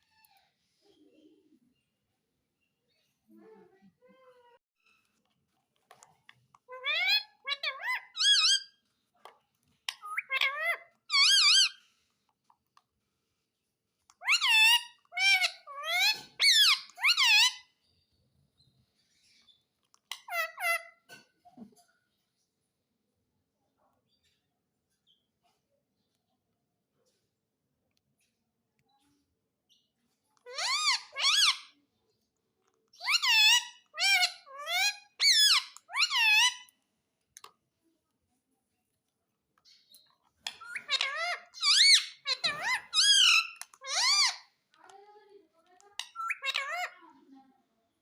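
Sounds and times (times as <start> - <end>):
parrot squawking calls: 6.7 - 8.7, 10.0 - 11.8, 14.2 - 17.7, 20.2 - 21.0, 30.4 - 31.8, 33.0 - 36.7, 40.5 - 44.5, 46.0 - 47.0.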